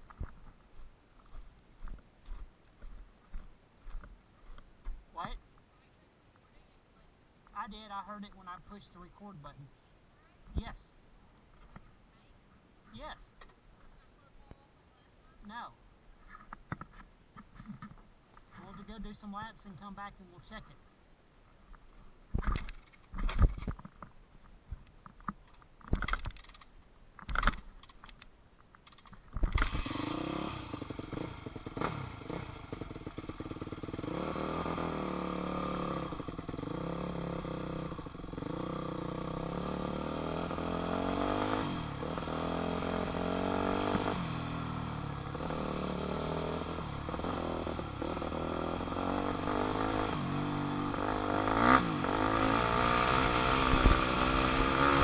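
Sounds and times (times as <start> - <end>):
dirt bike engine revving: 29.5 - 55.0.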